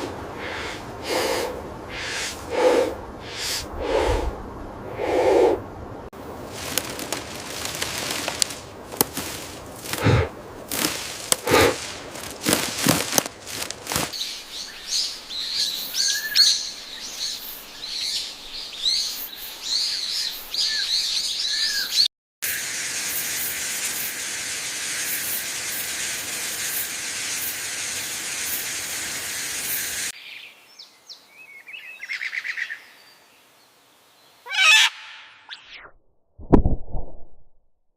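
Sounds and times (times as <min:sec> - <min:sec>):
steady high hiss: 0:00.0 - 0:19.7, 0:22.4 - 0:31.5.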